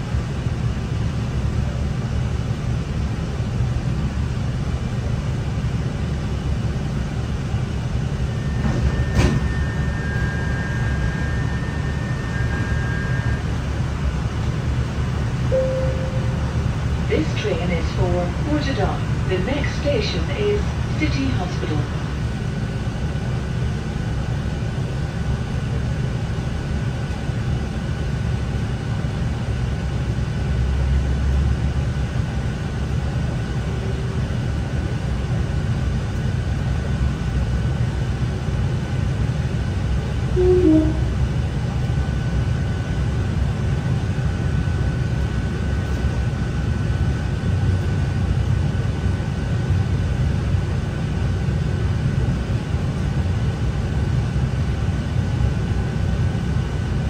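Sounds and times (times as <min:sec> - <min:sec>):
train engine and wheels rumbling: 0:00.0 - 0:57.0
faint steady whine: 0:05.8 - 0:28.8
two-note tone: 0:15.5 - 0:16.7, 0:40.4 - 0:41.2.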